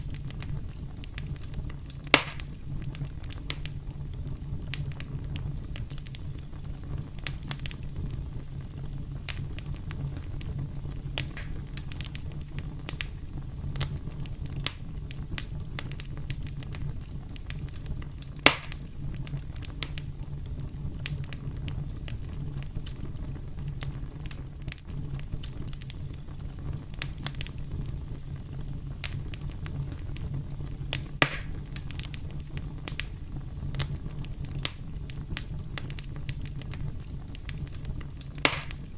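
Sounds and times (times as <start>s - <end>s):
campfire crackling and snapping: 0.0s - 38.9s
loud fire pops: 0.0s - 38.9s.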